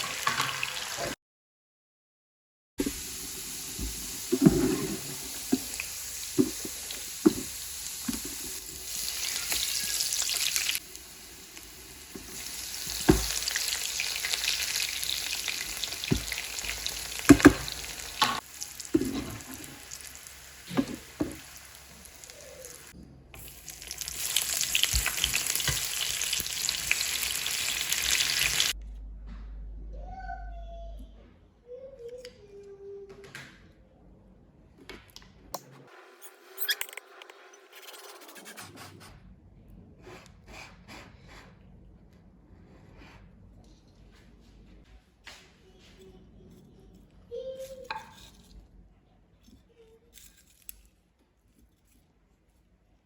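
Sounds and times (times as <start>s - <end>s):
food sizzling in a frying pan: 0.0s - 1.2s, 2.8s - 28.8s
utensil scraping a pan: 4.2s - 5.8s.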